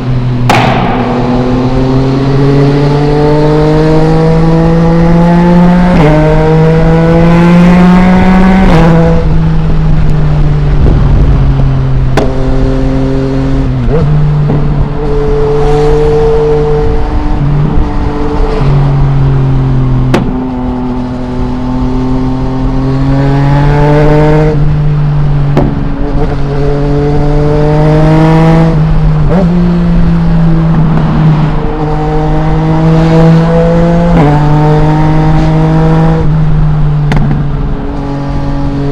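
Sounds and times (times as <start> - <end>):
motorcycle engine revving: 0.0 - 38.9
exhaust pops: 20.1 - 20.5.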